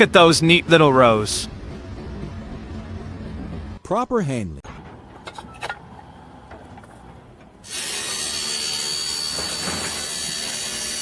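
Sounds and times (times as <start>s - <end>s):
power tool cutting: 7.6s - 11.0s.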